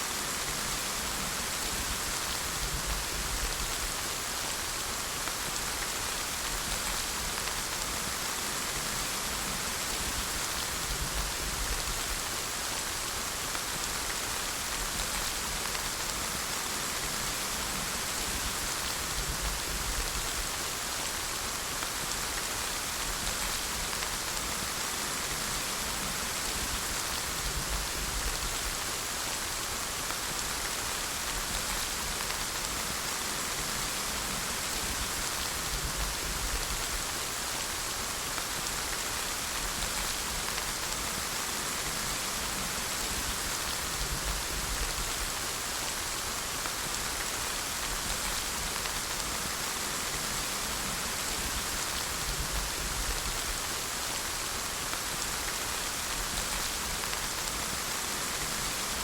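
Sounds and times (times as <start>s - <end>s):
steady rain hissing: 0.0s - 59.0s.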